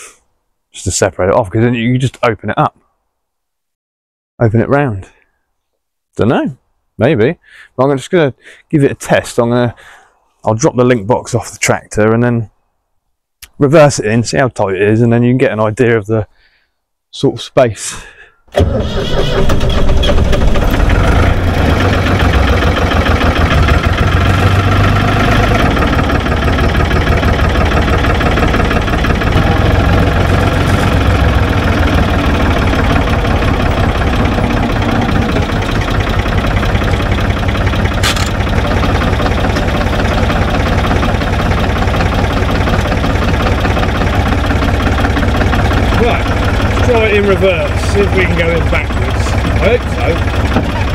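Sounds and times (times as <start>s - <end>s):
tractor engine running: 18.6s - 50.9s
sharp click: 38.0s - 38.4s.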